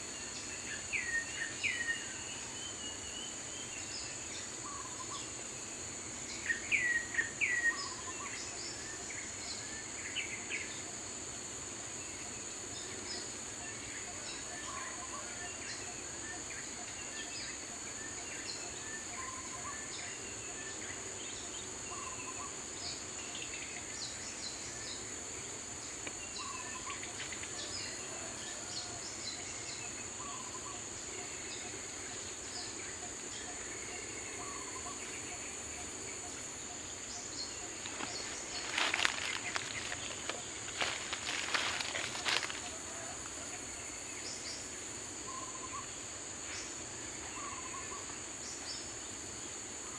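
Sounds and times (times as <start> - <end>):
high-pitched insect drone: 0.0 - 49.9
birds chirping: 29.4 - 49.0.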